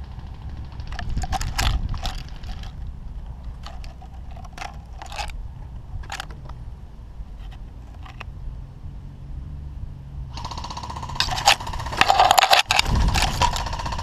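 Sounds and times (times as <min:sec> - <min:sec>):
steady low rumble: 0:00.0 - 0:14.0
crunching and scraping strokes: 0:00.8 - 0:06.6, 0:07.3 - 0:08.3, 0:11.1 - 0:14.0.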